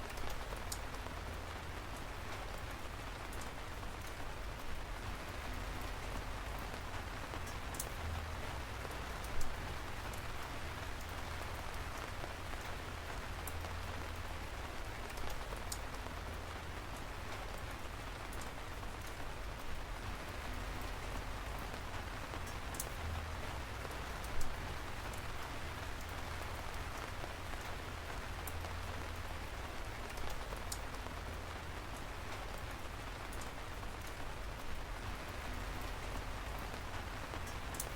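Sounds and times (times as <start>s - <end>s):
raindrops ticking: 0.0s - 37.9s
steady rain falling: 0.0s - 37.9s.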